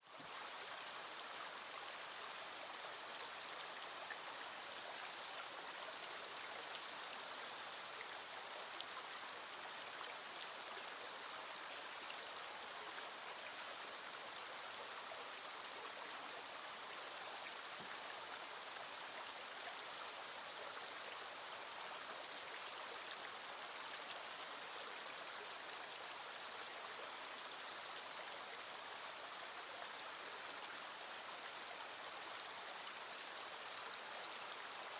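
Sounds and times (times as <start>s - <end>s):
stream flowing: 0.0s - 34.9s.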